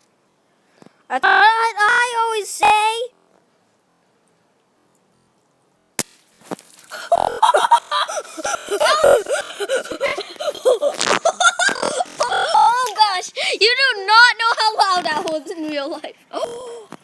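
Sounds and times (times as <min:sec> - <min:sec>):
laughter: 0:07.0 - 0:12.4
high-pitched shrieking: 0:07.0 - 0:12.8.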